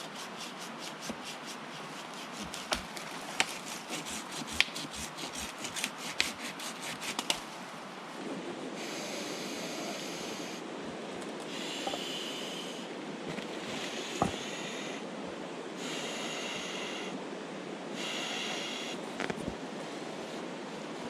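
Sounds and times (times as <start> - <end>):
dry wood crackling and snapping: 2.4 - 6.4
high hiss: 8.8 - 10.7, 11.5 - 13.0, 13.6 - 15.1, 15.8 - 17.2, 17.9 - 19.2.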